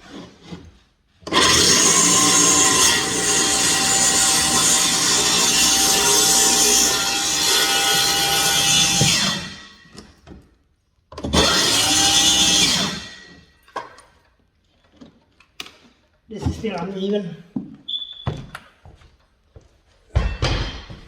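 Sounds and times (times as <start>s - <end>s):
circular saw cutting wood: 1.2s - 10.0s, 11.3s - 13.5s.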